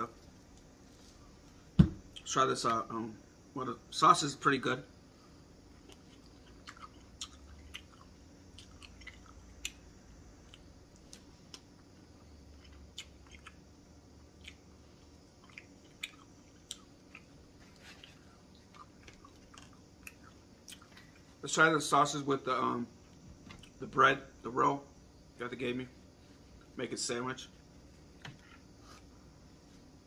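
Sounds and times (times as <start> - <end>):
person chewing food: 5.7 - 21.4.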